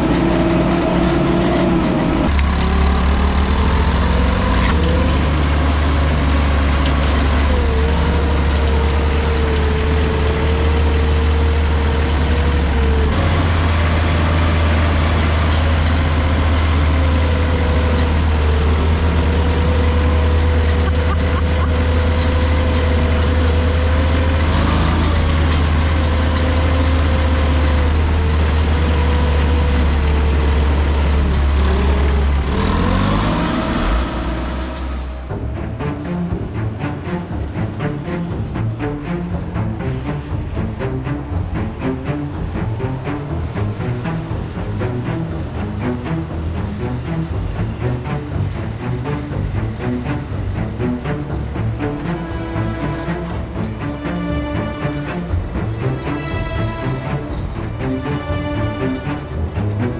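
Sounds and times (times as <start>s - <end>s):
diesel truck engine droning: 0.0s - 59.9s.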